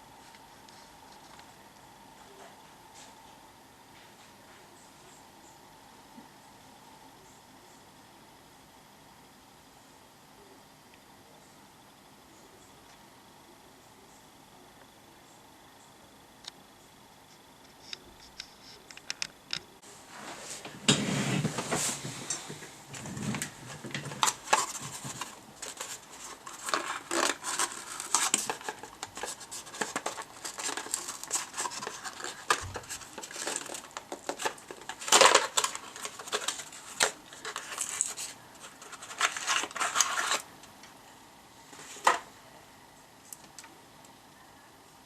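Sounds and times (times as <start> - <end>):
rustling: 19.8 - 40.5.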